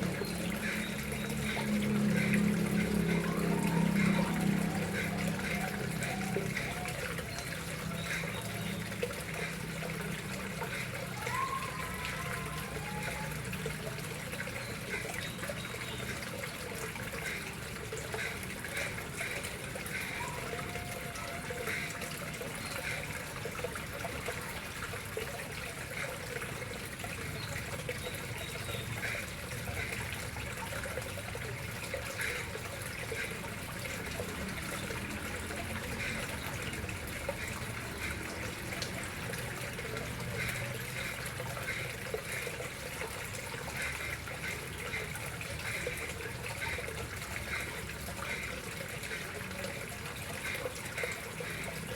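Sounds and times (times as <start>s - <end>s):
water running into a pond: 0.0s - 51.9s.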